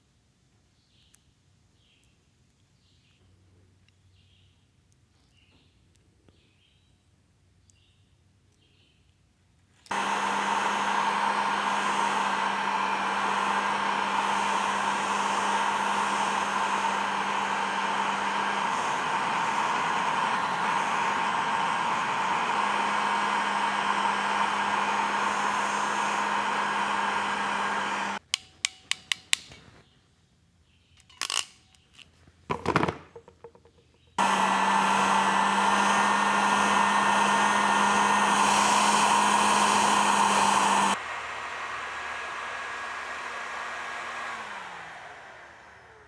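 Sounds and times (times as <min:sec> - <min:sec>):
heat gun blowing: 0:09.9 - 0:28.4, 0:34.2 - 0:46.0.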